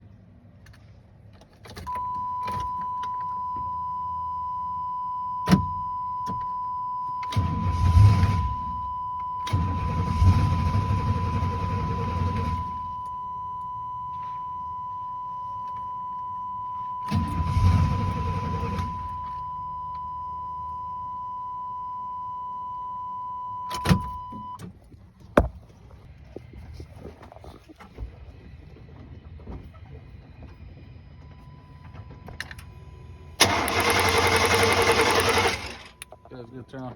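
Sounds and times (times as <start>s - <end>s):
engine cranking without starting: 33.4s - 36.2s.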